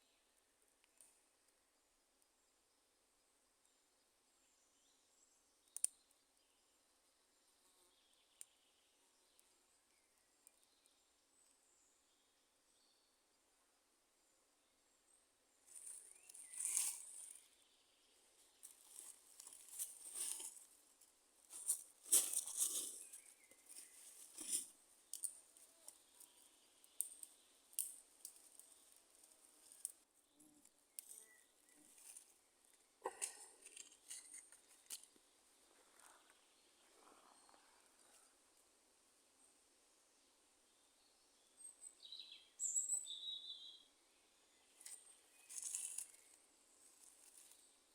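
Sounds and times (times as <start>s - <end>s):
dry leaves and twigs crackling: 15.6s - 36.4s, 44.7s - 47.7s.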